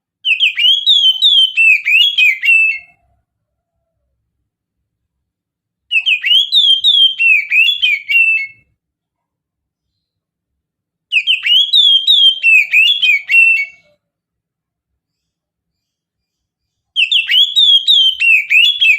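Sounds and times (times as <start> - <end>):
bird singing whistled notes: 0.2 - 3.0, 5.9 - 8.7, 11.1 - 14.0, 15.1 - 18.9.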